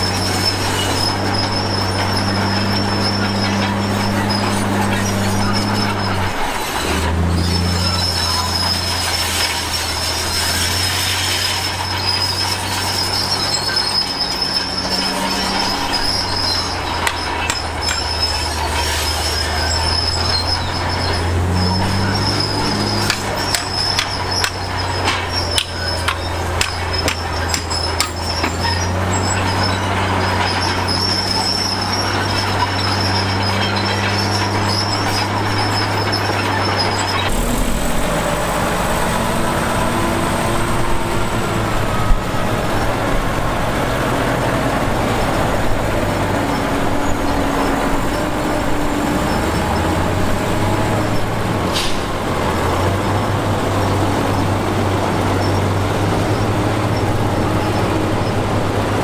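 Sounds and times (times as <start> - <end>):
sharp knocks and clanks: 0.0 - 38.6
bulldozer diesel engine: 0.0 - 59.0
high squeal of steel tracks: 0.0 - 59.0.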